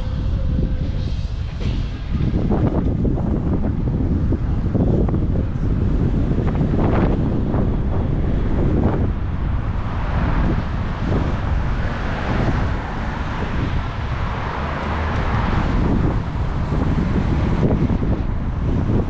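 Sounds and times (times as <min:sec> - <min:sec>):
road traffic: 0:00.0 - 0:19.0
wind buffeting microphone: 0:00.0 - 0:19.0.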